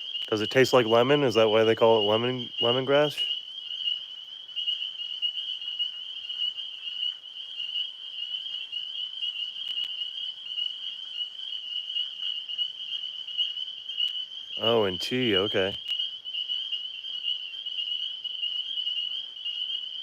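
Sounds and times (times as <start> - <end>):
frogs and insects trilling: 0.0 - 20.0.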